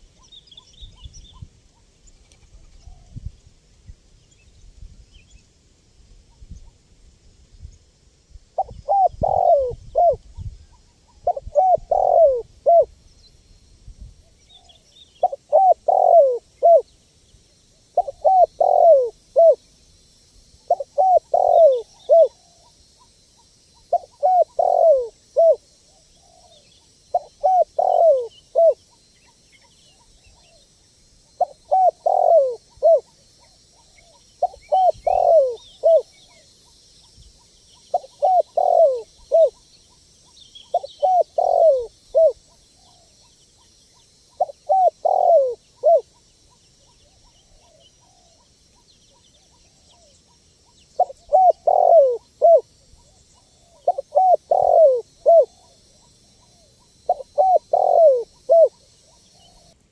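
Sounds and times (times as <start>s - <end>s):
dove cooing: 8.6s - 10.3s, 11.0s - 12.9s, 15.2s - 16.9s, 18.0s - 19.6s, 20.7s - 22.8s, 23.8s - 28.8s, 31.4s - 36.8s, 37.9s - 39.7s, 40.7s - 43.3s, 44.3s - 46.2s, 46.8s - 50.3s, 51.0s - 59.8s
small birds chirping: 8.6s - 19.9s, 20.6s - 59.8s.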